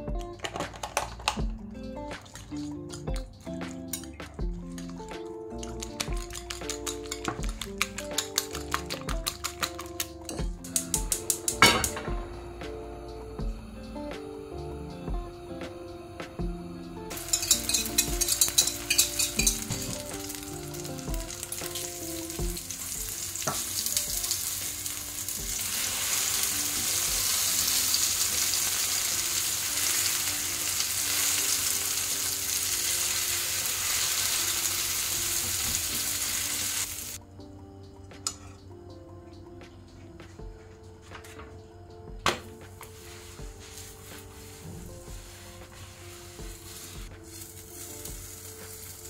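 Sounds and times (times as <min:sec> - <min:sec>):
egg frying in hot oil: 0:17.1 - 0:37.2, 0:47.2 - 0:49.0.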